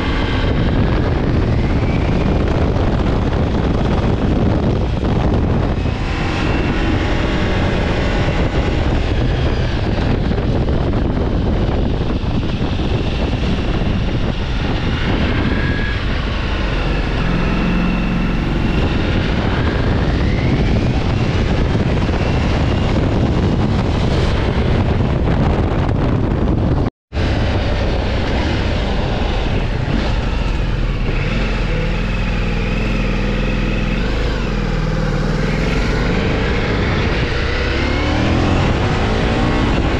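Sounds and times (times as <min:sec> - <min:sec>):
motorcycle engine at speed: 0:00.0 - 0:39.9
wind rush on microphone: 0:00.0 - 0:39.9.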